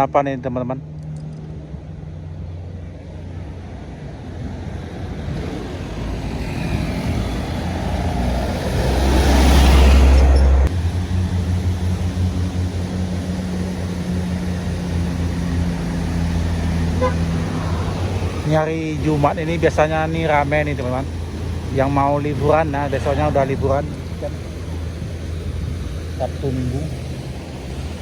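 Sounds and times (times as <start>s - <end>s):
heavy truck passing: 0.0s - 28.0s
low engine hum: 0.0s - 28.0s.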